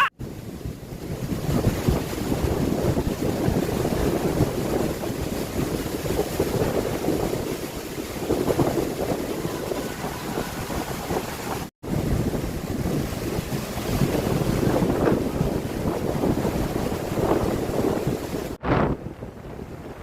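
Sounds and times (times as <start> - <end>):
waves breaking on beach: 0.0 - 20.0
wind gusting on microphone: 0.0 - 20.0.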